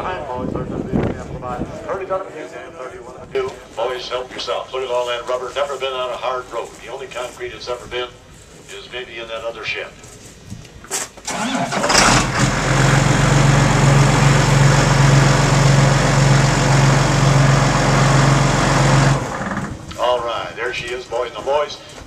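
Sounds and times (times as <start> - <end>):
tractor diesel engine idling: 11.3 - 19.8.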